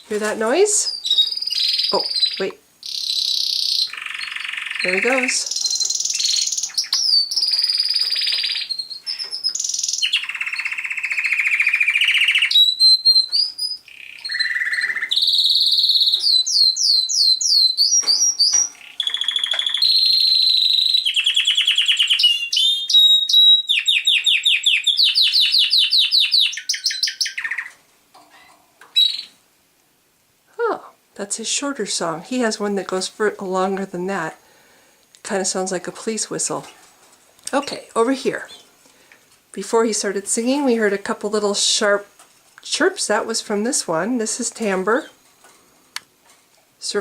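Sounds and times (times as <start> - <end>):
canary singing trills: 0.0 - 29.4.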